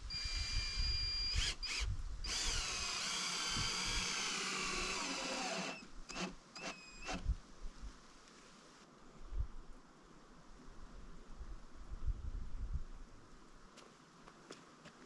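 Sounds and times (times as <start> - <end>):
power tool motor whining: 0.1 - 7.2.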